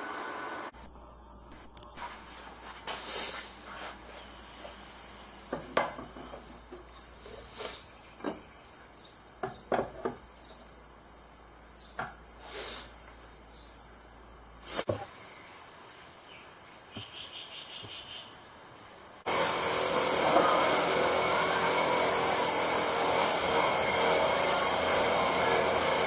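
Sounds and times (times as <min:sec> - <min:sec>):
hissing power tool: 0:00.0 - 0:00.8, 0:19.3 - 0:26.0.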